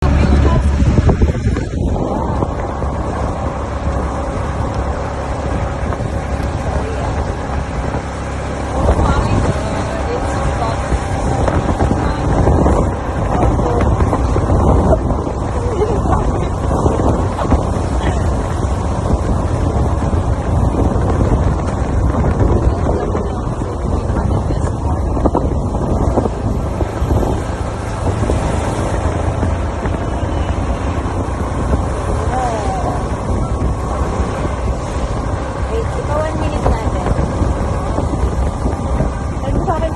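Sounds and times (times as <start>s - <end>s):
low rumbling noise: 0.0s - 39.9s
wind buffeting microphone: 0.0s - 39.9s.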